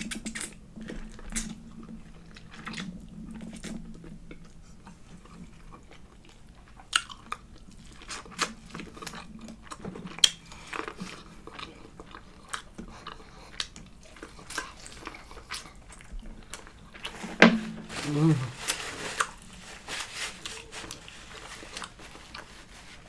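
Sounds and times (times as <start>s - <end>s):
person chewing and biting: 5.2s - 18.6s.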